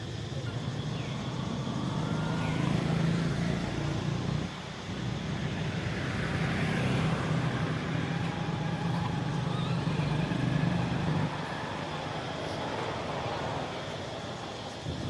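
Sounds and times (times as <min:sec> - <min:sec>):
outdoor traffic noise: 0:00.0 - 0:15.0
vehicle engine running: 0:00.5 - 0:11.4.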